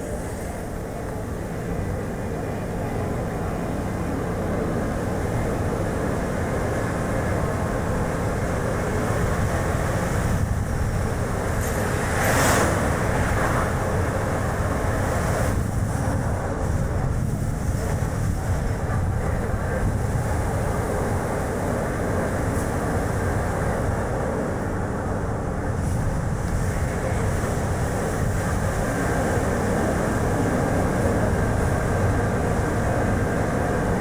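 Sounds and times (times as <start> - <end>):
road and tyre noise: 6.9 - 34.0.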